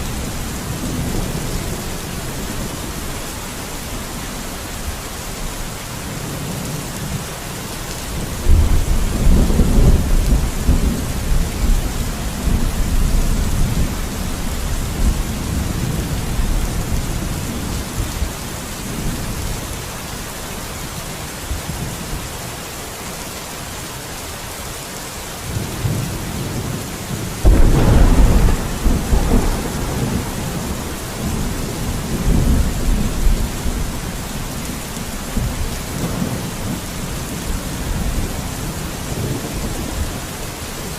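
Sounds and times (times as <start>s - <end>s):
heavy rain: 0.0s - 40.9s
rolling thunder: 8.2s - 18.2s, 27.4s - 40.1s.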